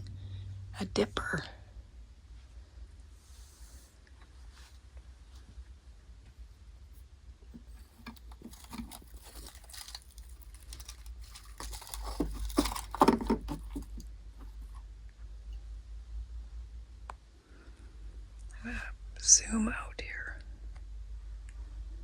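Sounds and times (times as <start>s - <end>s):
objects rustling and clinking: 7.5s - 14.8s.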